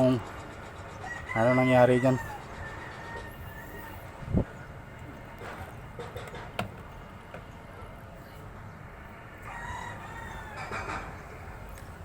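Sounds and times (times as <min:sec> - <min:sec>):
rooster crowing: 0:01.0 - 0:04.2, 0:09.4 - 0:11.5.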